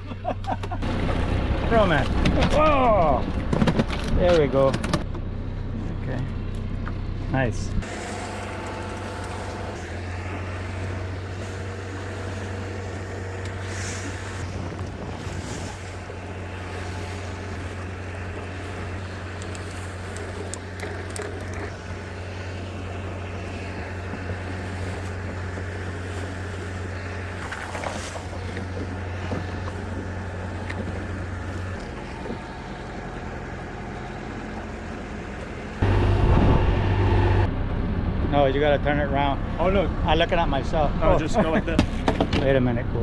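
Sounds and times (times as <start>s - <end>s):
boat motor running: 0.0s - 43.0s
hiss of wind and water: 7.8s - 35.9s.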